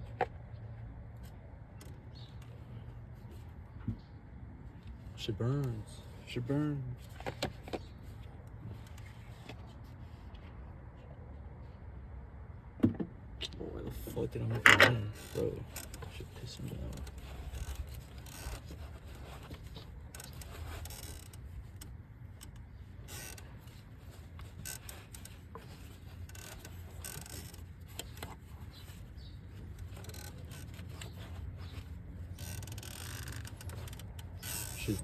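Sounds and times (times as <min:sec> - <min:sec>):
tools clicking on engine parts: 0:14.5 - 0:35.0.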